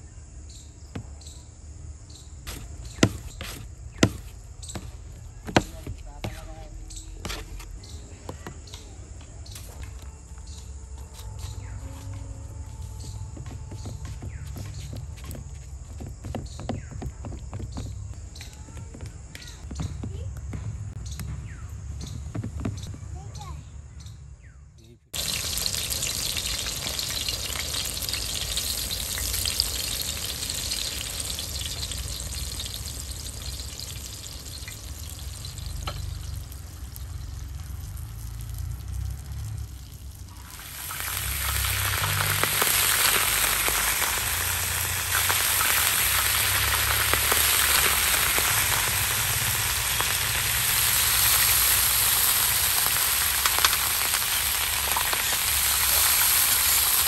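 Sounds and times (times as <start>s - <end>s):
meat sizzling in oil: 25.2s - 57.0s.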